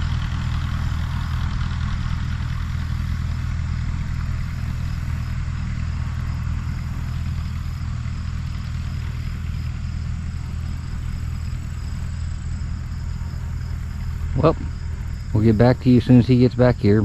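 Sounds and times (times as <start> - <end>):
tractor engine running steadily: 0.0 - 17.0.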